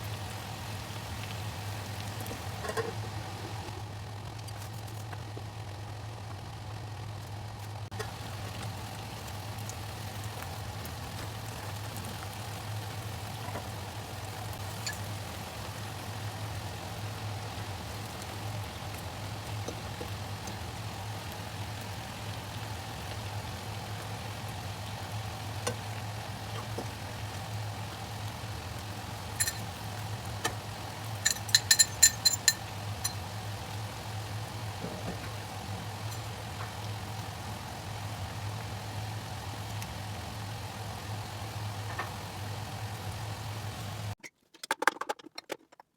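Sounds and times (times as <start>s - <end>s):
food frying in a wok: 0.0s - 44.2s
metal utensil tapping a wok: 29.4s - 29.7s, 31.2s - 33.2s.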